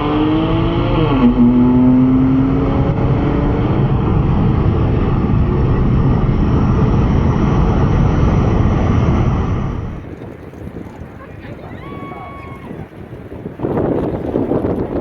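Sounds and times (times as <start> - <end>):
faint rising whine: 0.0 - 10.3
rush of wind and road noise: 0.0 - 15.0.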